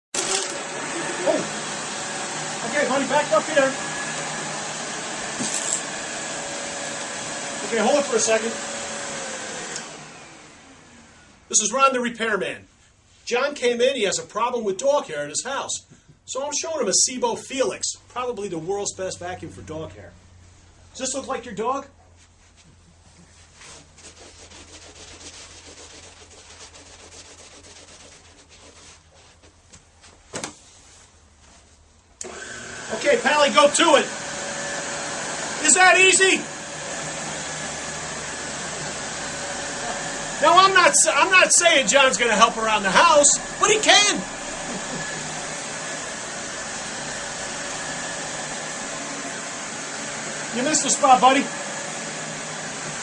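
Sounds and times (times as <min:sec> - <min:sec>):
vacuum cleaner running: 0:00.2 - 0:11.8, 0:32.2 - 0:53.0
rubbing and scraping handling noises: 0:05.2 - 0:05.9, 0:22.0 - 0:32.1.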